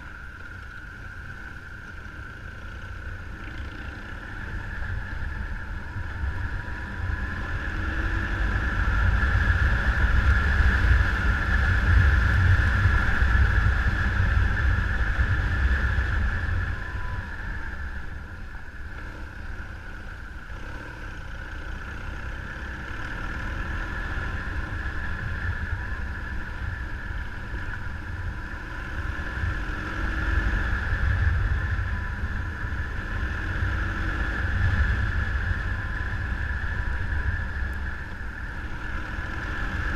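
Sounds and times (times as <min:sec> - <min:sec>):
motorcycle engine drone: 0:00.0 - 0:39.9
wind rumble on microphone: 0:00.0 - 0:39.9.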